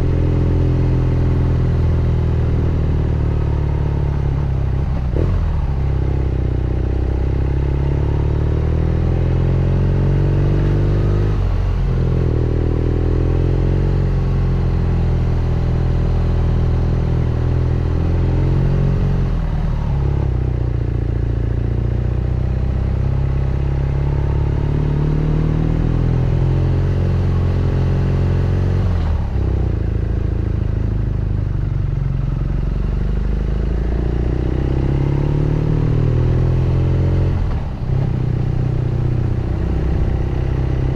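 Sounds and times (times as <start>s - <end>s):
motorcycle engine revving: 22.6s - 40.9s.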